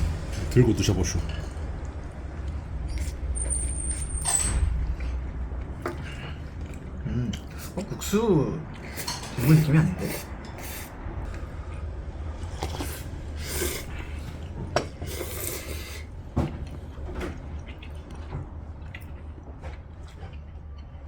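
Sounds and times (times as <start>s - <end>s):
low room hum: 0.0s - 21.0s
people slurping noodles: 8.8s - 11.5s, 12.4s - 16.1s.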